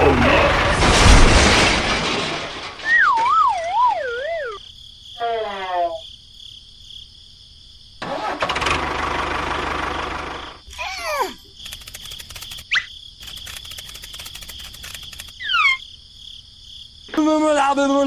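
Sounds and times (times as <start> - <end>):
comic downward slides: 0.0 - 4.6
outdoor noise: 0.0 - 18.0
comic falling whistle tone: 2.8 - 4.6.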